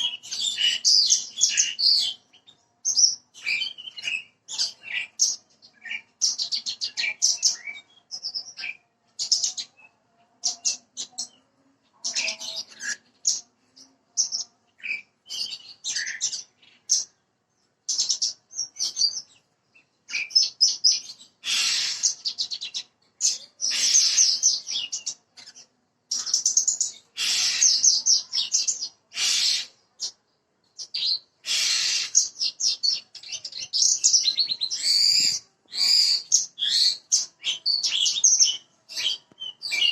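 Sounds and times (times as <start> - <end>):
bird chattering trills: 20.2 - 30.1, 30.8 - 39.9.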